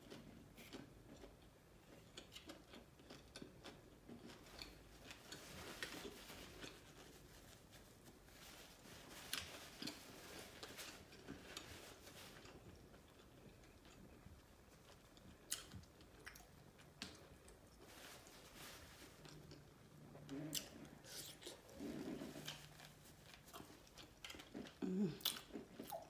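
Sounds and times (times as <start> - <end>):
chewing with wet mouth clicks: 12.5 - 17.6, 23.3 - 26.0.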